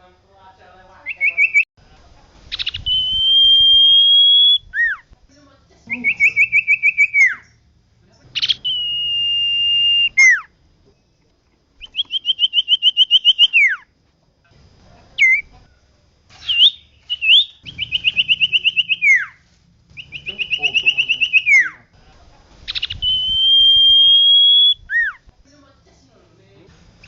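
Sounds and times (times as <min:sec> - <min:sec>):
bird singing whistled trills: 0:01.1 - 0:01.7, 0:02.5 - 0:05.0, 0:05.9 - 0:07.6, 0:08.3 - 0:11.1, 0:11.8 - 0:13.9, 0:15.2 - 0:15.5, 0:16.4 - 0:21.8, 0:22.7 - 0:25.2.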